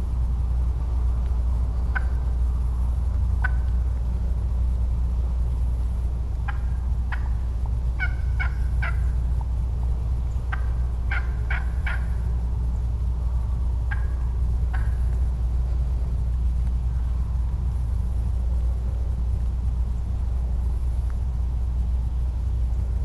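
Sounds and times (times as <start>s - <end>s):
steady low rumble: 0.0s - 23.0s
wild turkey yelps: 1.9s - 2.3s, 3.4s - 3.8s, 6.4s - 7.4s, 8.0s - 9.2s, 10.4s - 12.2s, 13.9s - 15.2s.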